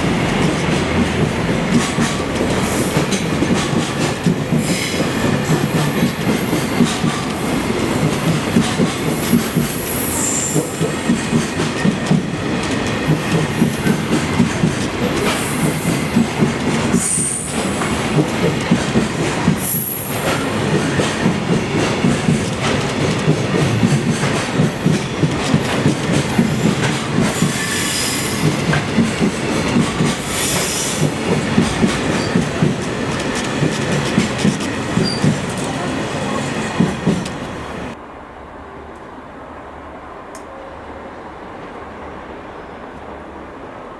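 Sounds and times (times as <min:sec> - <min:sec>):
train wheels clattering over rail joints: 0:00.1 - 0:09.9, 0:10.5 - 0:35.8.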